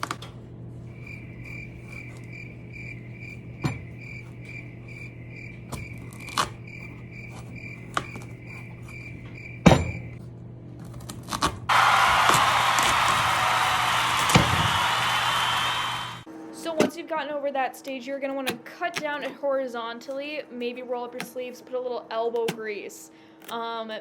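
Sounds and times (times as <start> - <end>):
high pulsing chirping: 0.9 - 10.2.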